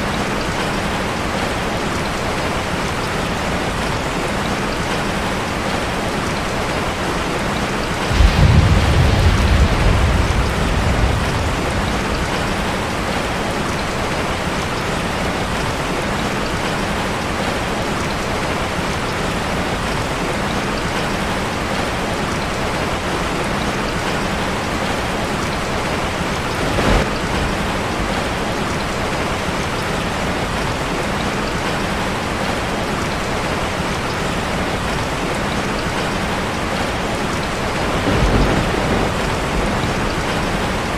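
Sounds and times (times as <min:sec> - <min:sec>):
rain drumming on a metal roof: 0:00.0 - 0:40.9
low rumble of thunder: 0:07.5 - 0:15.8, 0:21.5 - 0:30.7, 0:36.5 - 0:40.9.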